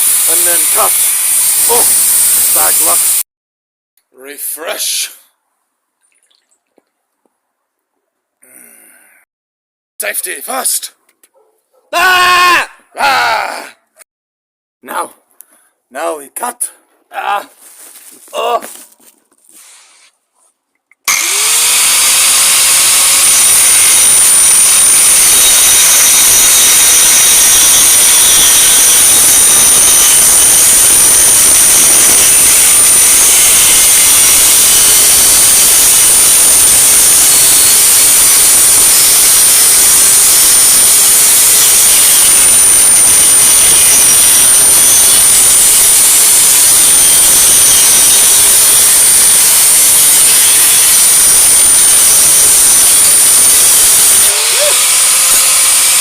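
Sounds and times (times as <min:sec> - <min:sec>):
angle grinder cutting metal pipe: 0:00.0 - 0:03.2, 0:21.1 - 0:56.0.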